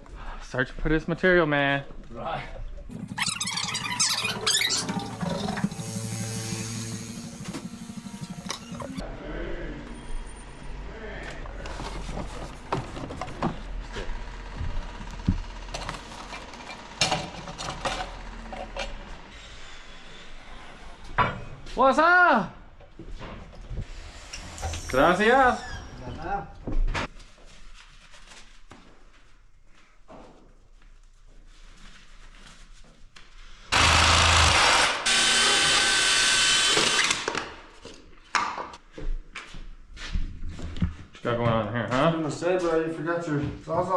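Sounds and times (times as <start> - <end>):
handling noise: 2.9 - 9.0
knocks and clanks of tools: 2.9 - 9.0
low hum of machinery: 3.0 - 9.0.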